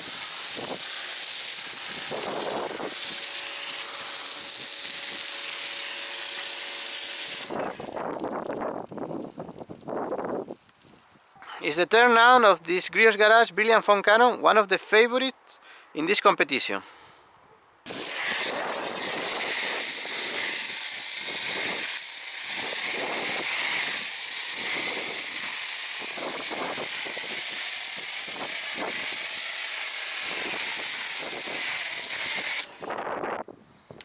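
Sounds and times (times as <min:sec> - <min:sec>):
pressure washer spray hissing: 0:00.0 - 0:08.0, 0:17.9 - 0:32.9.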